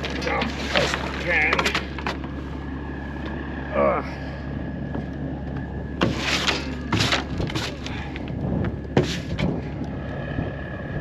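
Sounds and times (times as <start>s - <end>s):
gravel and wood scraping and knocking: 0.0s - 2.6s, 4.8s - 10.4s
truck engine idling: 0.0s - 11.0s.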